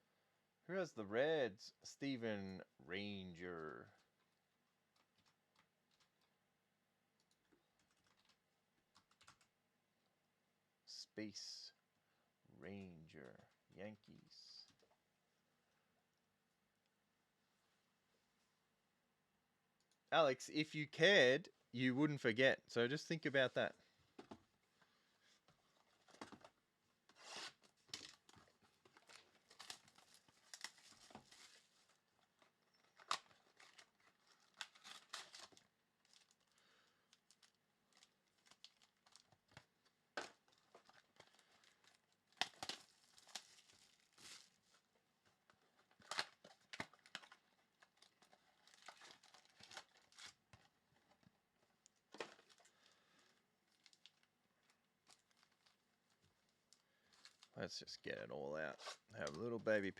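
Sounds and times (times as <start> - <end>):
packaging tearing and crinkling: 27.2 - 39.6, 40.2 - 44.8, 45.8 - 50.5.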